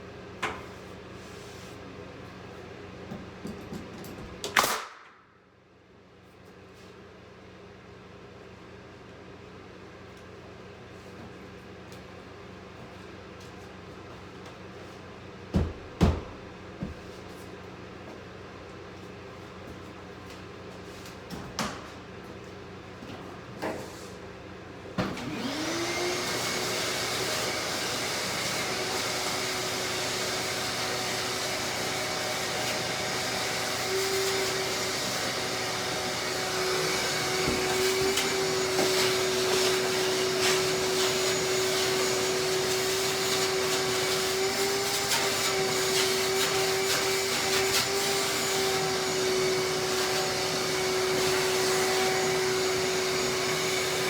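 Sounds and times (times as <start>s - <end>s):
vacuum cleaner motor whine: 25.0s - 54.0s.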